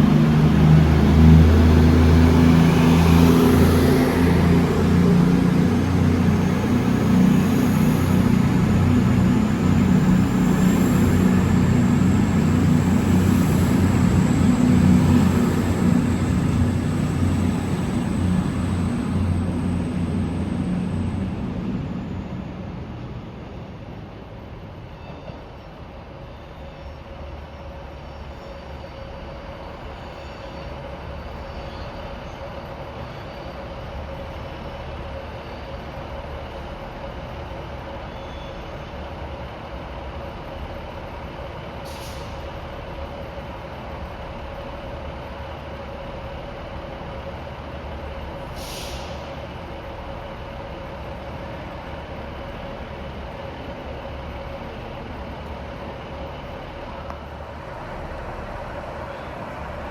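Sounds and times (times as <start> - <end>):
train engine humming: 0.0 - 59.9
air brake hisses: 41.8 - 42.6, 48.4 - 49.4.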